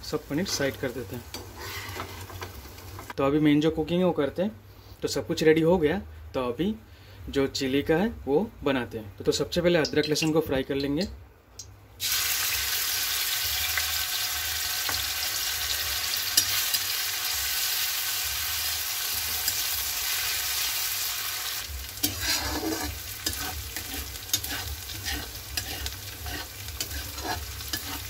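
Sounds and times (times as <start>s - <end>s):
garlic sizzling in hot oil: 0.0s - 3.2s, 12.0s - 28.0s
metal spatula scraping a pan: 1.3s - 2.6s, 22.0s - 28.0s.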